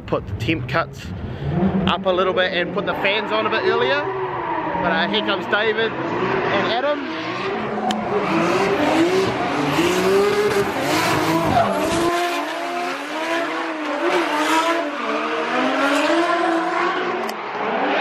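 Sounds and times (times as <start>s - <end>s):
car engines revving: 0.0s - 18.0s
tyre squeal and skidding: 2.9s - 7.2s, 10.7s - 12.4s.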